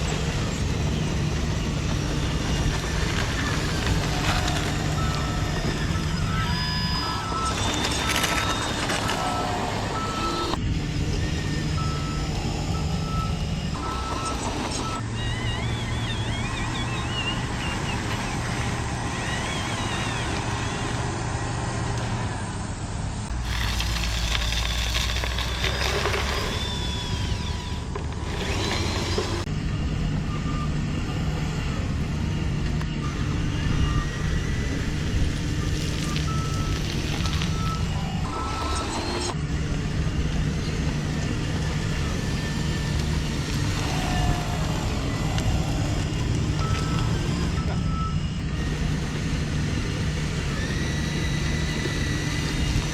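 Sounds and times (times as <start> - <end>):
electronic reversing beeper: 0.0 - 21.1, 33.0 - 39.5, 40.1 - 48.5
low engine-like hum: 0.0 - 52.9.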